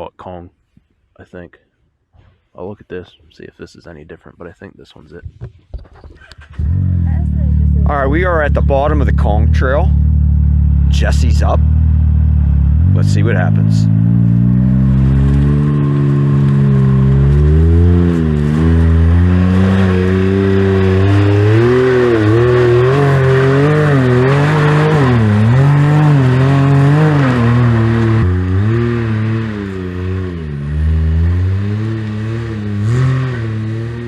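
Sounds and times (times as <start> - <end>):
vehicle engine revving: 6.2 - 34.0.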